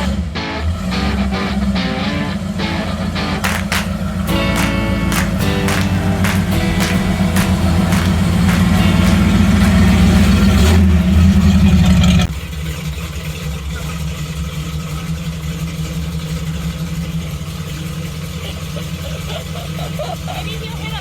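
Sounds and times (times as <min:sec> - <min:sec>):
loud music: 0:00.4 - 0:10.7
vehicle engine idling: 0:00.7 - 0:21.0.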